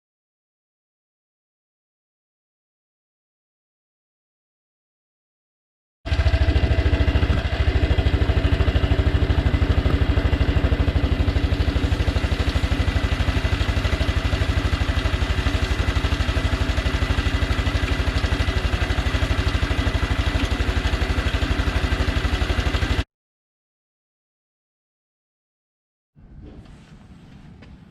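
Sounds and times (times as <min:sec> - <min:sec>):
motorcycle engine running steadily: 0:06.1 - 0:23.1.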